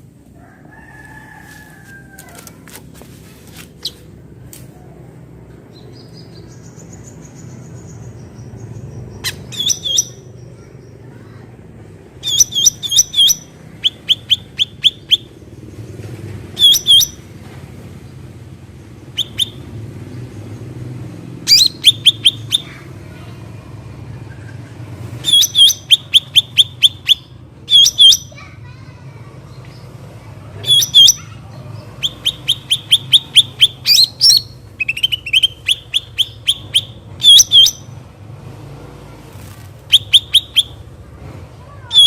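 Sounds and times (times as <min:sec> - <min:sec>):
bird sharp rapid chirps: 0:03.6 - 0:04.1, 0:05.8 - 0:11.0, 0:12.2 - 0:15.4, 0:16.6 - 0:17.2, 0:19.1 - 0:20.2, 0:21.4 - 0:22.8, 0:25.2 - 0:28.4, 0:30.6 - 0:38.0, 0:39.8 - 0:40.9.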